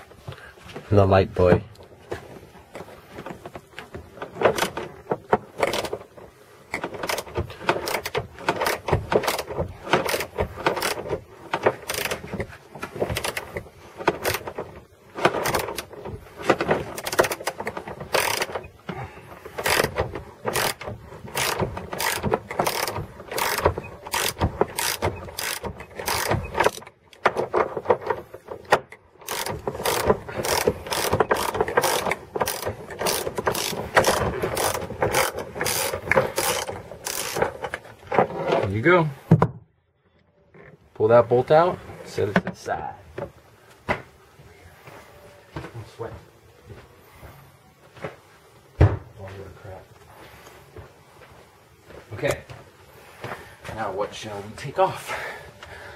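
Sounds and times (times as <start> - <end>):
socket ratchet clicking: 7.0 - 11.1, 17.0 - 18.6, 20.5 - 26.8, 29.2 - 37.5.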